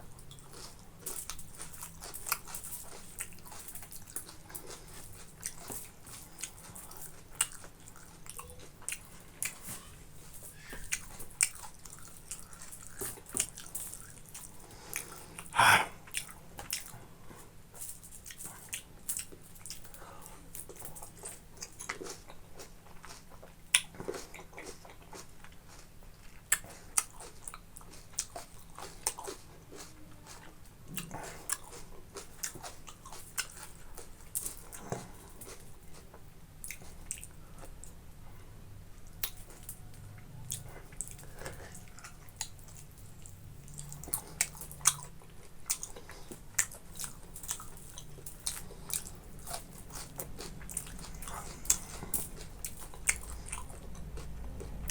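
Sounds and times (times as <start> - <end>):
person chewing: 0.2 - 38.0, 39.0 - 54.9.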